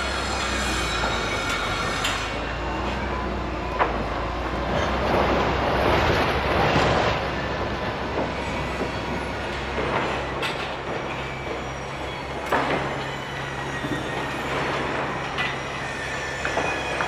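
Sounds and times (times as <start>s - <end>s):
faint clanks or squeals: 0.0s - 4.1s, 8.2s - 17.0s
heavy machinery rumbling: 0.0s - 17.0s.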